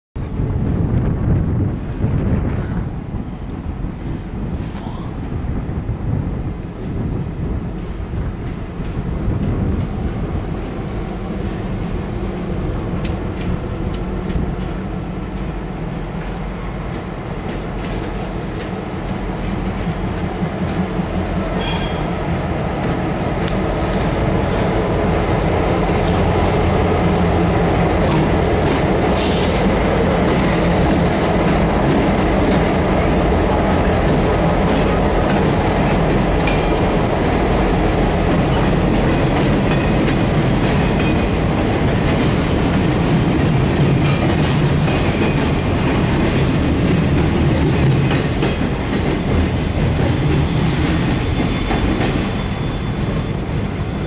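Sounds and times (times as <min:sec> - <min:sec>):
freight train rumbling: 0:00.2 - 0:54.0
high squeal: 0:50.2 - 0:54.0.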